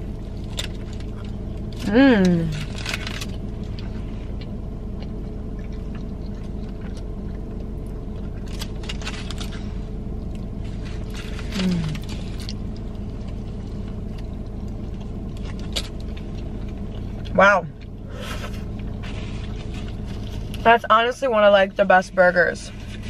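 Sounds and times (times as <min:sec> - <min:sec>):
low hum inside a car: 0:00.0 - 0:23.0
person chewing: 0:00.1 - 0:20.6
foil wrapper crinkling: 0:02.5 - 0:04.0, 0:08.4 - 0:09.8, 0:18.5 - 0:20.7
person humming mm: 0:11.5 - 0:12.1.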